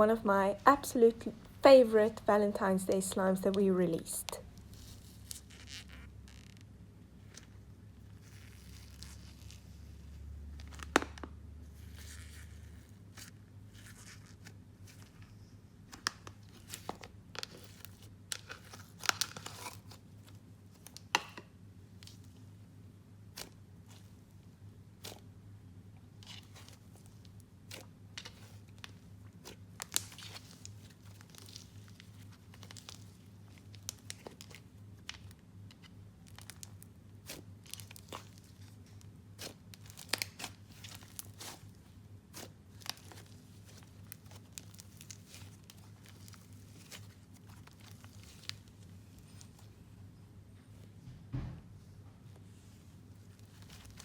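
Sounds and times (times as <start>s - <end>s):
slime crackling and popping: 17.4s - 20.0s, 27.6s - 41.6s, 42.3s - 49.6s.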